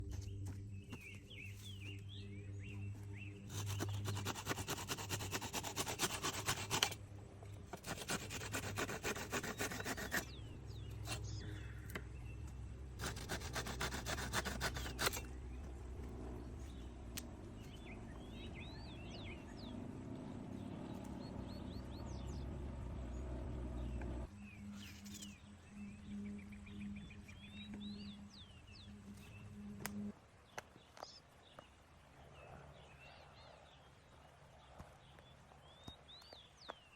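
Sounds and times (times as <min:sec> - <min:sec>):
low steady hum: 0:00.0 - 0:04.2, 0:06.8 - 0:36.0
wood being rasped by hand: 0:03.5 - 0:07.0, 0:07.7 - 0:11.4, 0:13.0 - 0:15.3.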